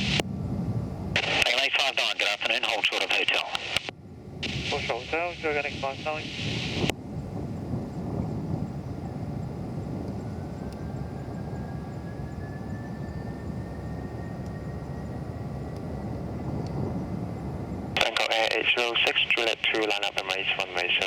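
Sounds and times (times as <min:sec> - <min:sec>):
distant jet engines rumbling: 0:00.0 - 0:21.0
faint rising whine: 0:08.7 - 0:21.0.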